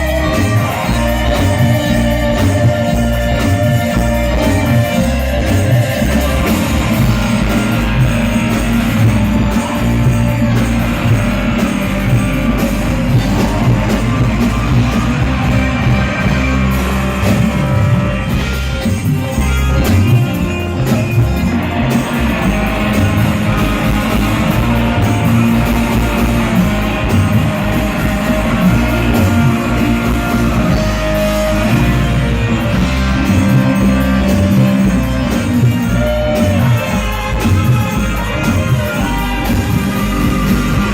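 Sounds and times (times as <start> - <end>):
loud music with heavy bass: 0.0 - 40.9
person singing: 0.0 - 40.9.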